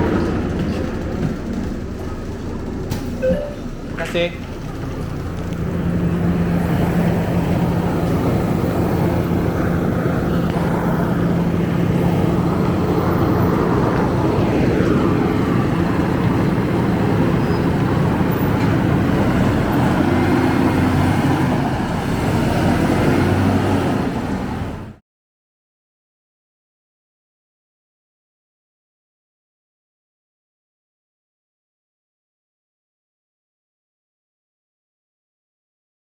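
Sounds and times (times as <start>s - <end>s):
bus engine droning: 0.0s - 25.0s.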